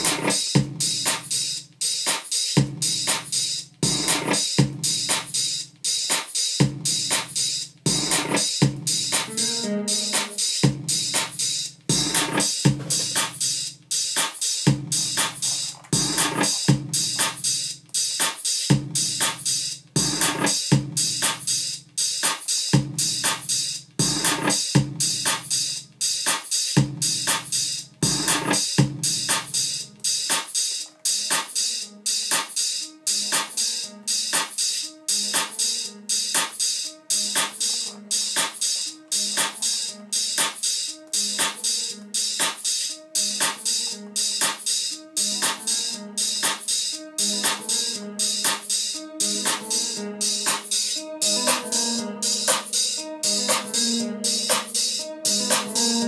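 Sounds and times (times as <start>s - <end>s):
drum machine beat: 0.0s - 56.0s.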